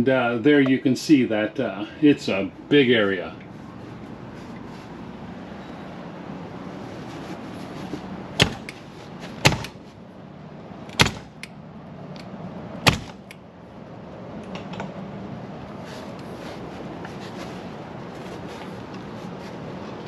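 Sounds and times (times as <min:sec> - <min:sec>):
steady background hum: 0:00.0 - 0:20.0
latch clicks: 0:10.9 - 0:13.4
metal doors banging shut: 0:12.8 - 0:13.3.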